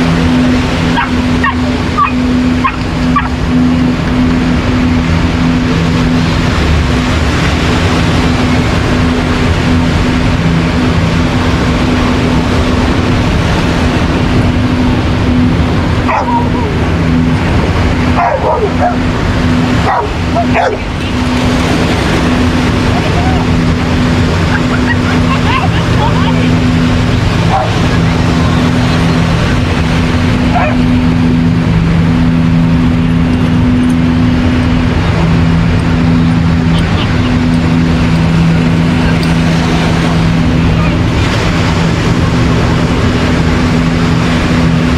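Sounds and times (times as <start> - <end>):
low steady hum: 0.0 - 44.9
ocean surf rushing: 0.0 - 44.9
dog barking: 0.9 - 3.3, 16.1 - 16.5, 18.2 - 19.0, 19.8 - 20.8, 30.5 - 30.8.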